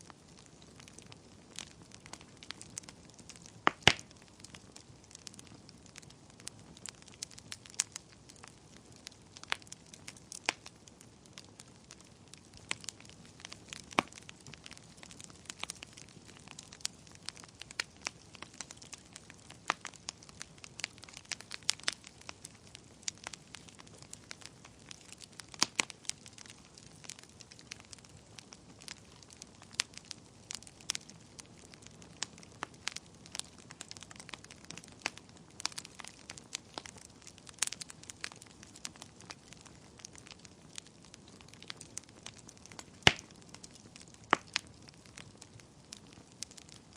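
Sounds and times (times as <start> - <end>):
fire pops and snaps: 0.0 - 46.9
wood fire crackling: 0.0 - 46.9.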